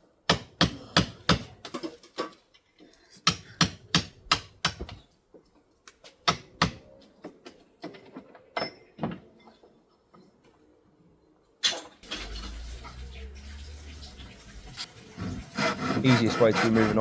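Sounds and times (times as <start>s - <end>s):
hammer blows on chisel: 0.3s - 1.6s, 3.3s - 5.0s, 6.3s - 6.9s.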